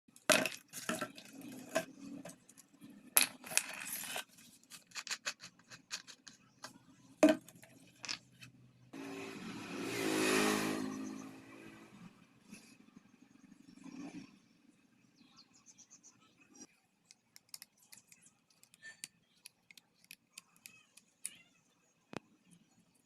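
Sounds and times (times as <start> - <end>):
sharp clicks and taps: 17.0 - 21.4.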